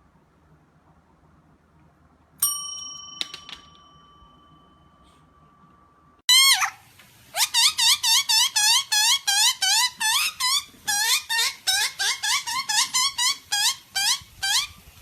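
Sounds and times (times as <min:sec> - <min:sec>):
small bell ringing: 0:02.4 - 0:06.2
repeated squeaks: 0:07.4 - 0:14.8.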